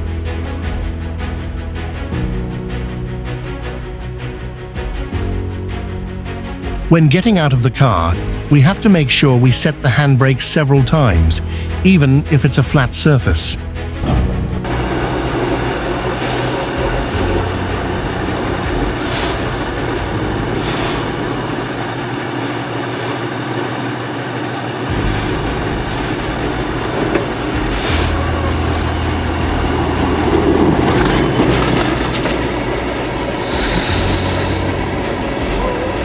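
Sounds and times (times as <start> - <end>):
low hum: 13.6 - 36.0
heavy vehicle road noise: 14.0 - 36.0
short hisses: 33.4 - 34.7.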